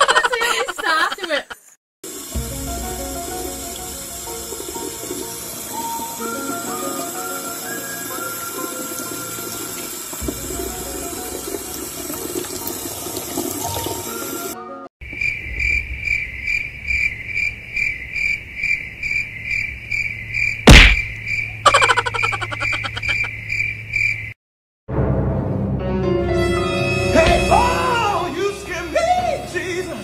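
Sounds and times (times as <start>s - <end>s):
background music: 2.2s - 14.9s, 24.9s - 30.0s
loud thump: 20.7s - 21.2s.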